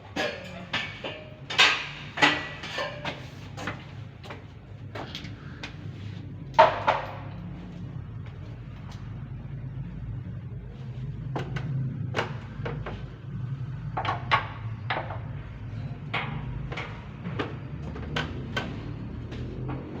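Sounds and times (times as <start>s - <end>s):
steady low hum: 0.0s - 20.0s
sharp knocks and clicks: 11.3s - 13.1s, 13.9s - 15.4s, 16.0s - 20.0s.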